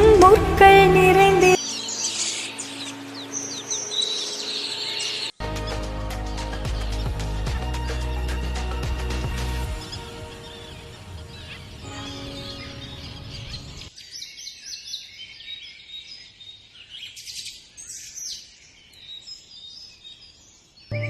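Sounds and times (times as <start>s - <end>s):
birds chirping: 0.0s - 8.4s, 9.4s - 21.0s
background music: 0.0s - 13.9s.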